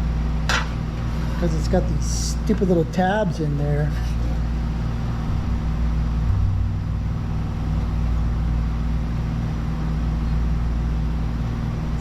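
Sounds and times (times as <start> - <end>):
constant hum: 0.0 - 12.0
low rumble: 4.1 - 11.2.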